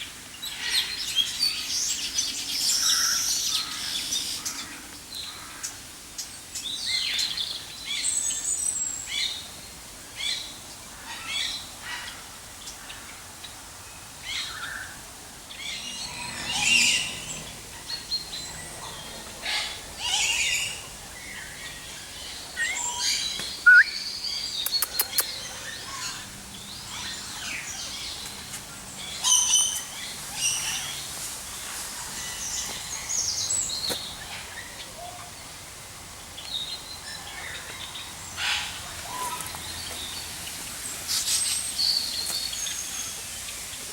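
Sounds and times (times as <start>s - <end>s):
birds chirping and calling: 15.5s - 31.1s
sharp click: 24.6s - 25.3s.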